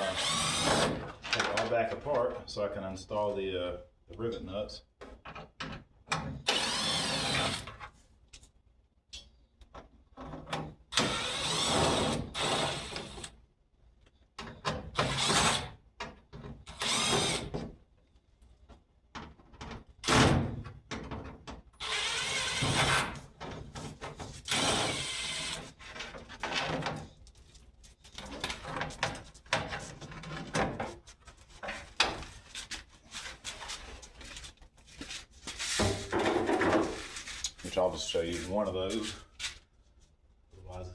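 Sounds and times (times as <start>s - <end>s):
cordless drill running in bursts: 0.1s - 0.9s, 6.5s - 7.6s, 11.0s - 13.2s, 21.8s - 22.7s.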